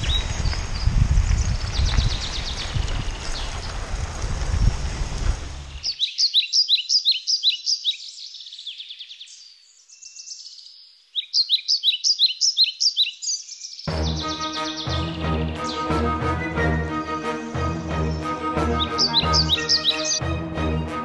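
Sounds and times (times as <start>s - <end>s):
wind rumble on microphone: 0.0s - 5.9s
high-pitched bird chirps: 5.8s - 9.2s, 11.2s - 15.9s, 18.8s - 20.2s.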